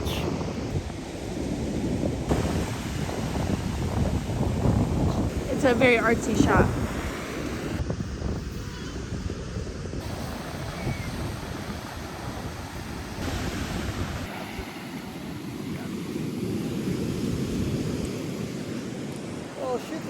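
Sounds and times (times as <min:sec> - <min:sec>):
ocean surf: 0:00.0 - 0:20.0
wind on microphone: 0:00.0 - 0:20.0.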